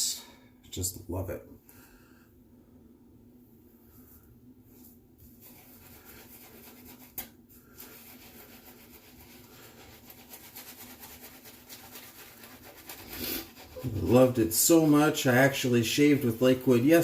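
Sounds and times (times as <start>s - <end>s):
razor scraping beard stubble: 5.5s - 15.0s.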